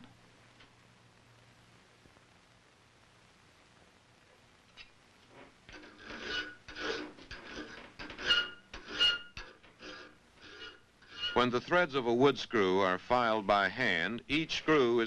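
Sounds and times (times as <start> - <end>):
hand file rasping on metal: 5.8 - 11.4.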